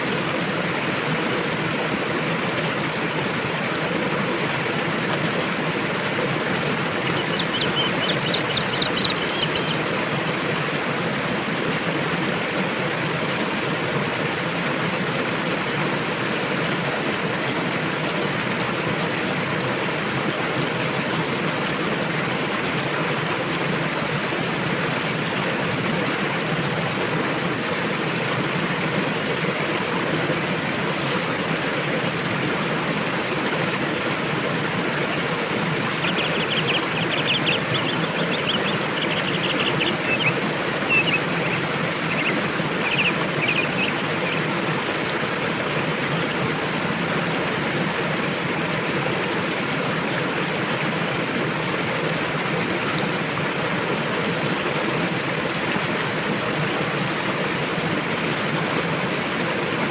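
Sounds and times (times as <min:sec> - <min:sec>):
river water rushing: 0:00.0 - 0:59.9
bird chirping: 0:07.0 - 0:09.9, 0:35.1 - 0:44.5.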